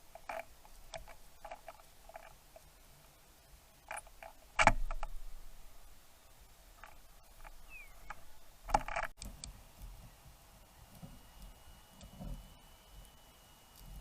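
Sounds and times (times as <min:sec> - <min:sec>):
sharp clattering knocks and scratching: 0:00.0 - 0:02.7, 0:06.8 - 0:09.5
short falling bird chirp: 0:07.6 - 0:08.2.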